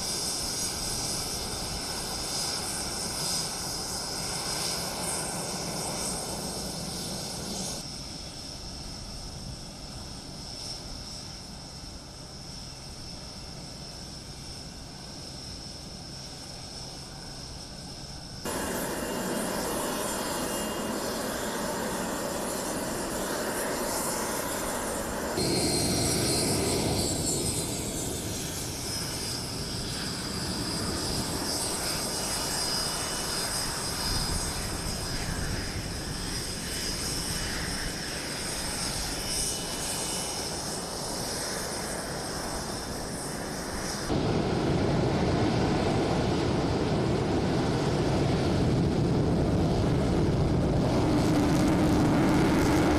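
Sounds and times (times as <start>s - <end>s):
jet engines whining: 0.0s - 52.9s.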